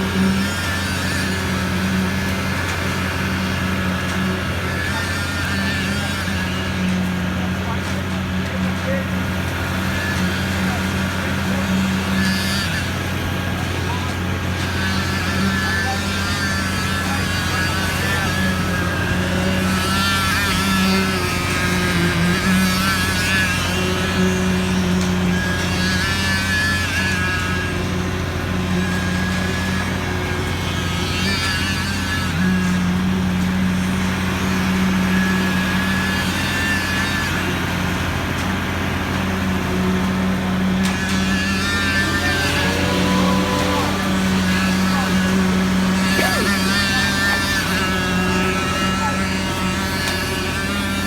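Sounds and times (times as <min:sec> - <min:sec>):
engine humming steadily: 0:37.4 - 0:51.0
faint wavering sounds: 0:41.2 - 0:46.8.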